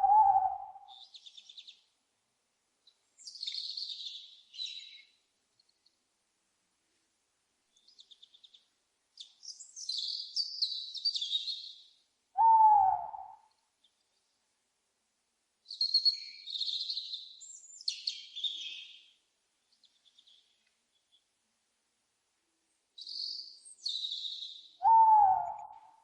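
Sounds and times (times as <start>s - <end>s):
owl hoot: 0.0s - 1.0s, 12.4s - 13.5s, 24.8s - 26.0s
small birds twittering: 0.0s - 1.9s, 2.8s - 5.2s, 7.7s - 13.2s, 15.7s - 21.3s, 23.0s - 25.8s.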